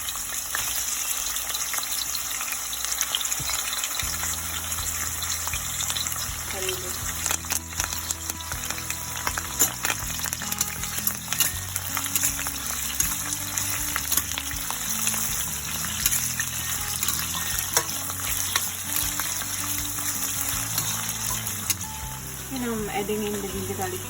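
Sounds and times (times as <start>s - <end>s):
onions sizzling in oil: 0.0s - 24.0s.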